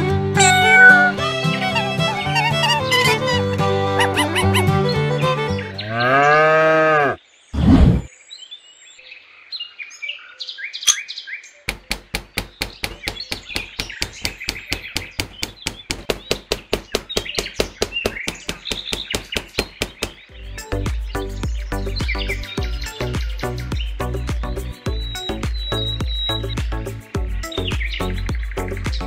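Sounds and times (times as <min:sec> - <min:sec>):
birds chirping: 0:00.4 - 0:29.0
hammer tapping: 0:11.7 - 0:20.2.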